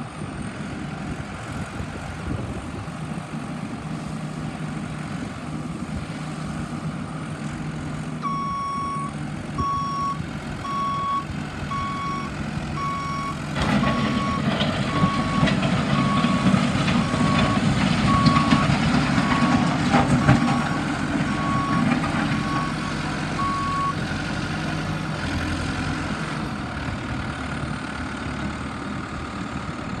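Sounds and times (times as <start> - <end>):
backhoe loader engine: 0.0 - 30.0
reverse alarm beeping: 8.2 - 18.7.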